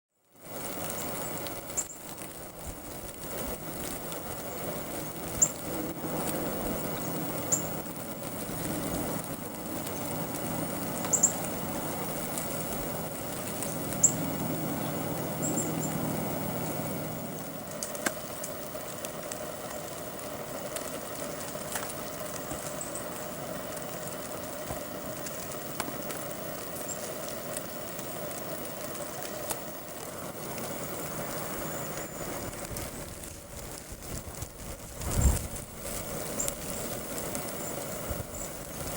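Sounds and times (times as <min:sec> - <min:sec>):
steady background hum: 0:00.2 - 0:38.9
birds giving thin lisping calls: 0:00.7 - 0:18.6.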